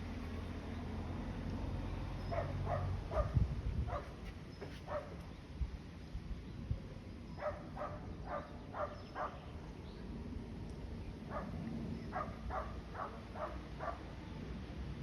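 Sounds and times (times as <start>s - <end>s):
dog barking: 2.3s - 4.1s, 4.9s - 5.1s, 7.4s - 9.4s, 11.3s - 11.5s, 12.1s - 14.0s.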